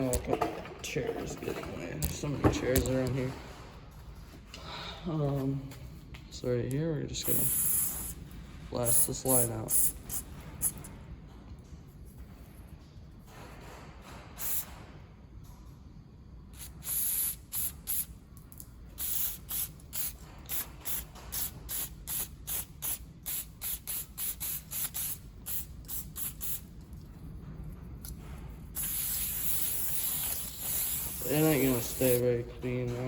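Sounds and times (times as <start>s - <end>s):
aerosol spray hissing bursts: 7.2s - 8.2s, 8.8s - 10.8s, 14.4s - 14.7s, 16.5s - 18.1s, 19.0s - 26.6s, 28.8s - 32.3s.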